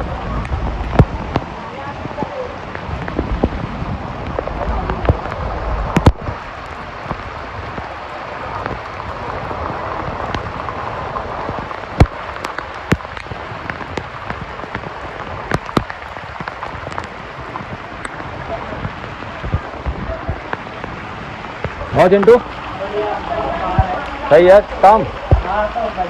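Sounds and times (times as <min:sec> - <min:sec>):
rain falling: 0:00.0 - 0:26.0.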